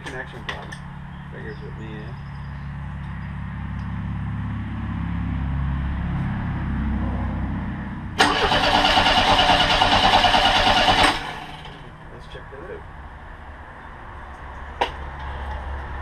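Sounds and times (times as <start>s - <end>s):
engine cranking on starter: 8.2s - 11.9s.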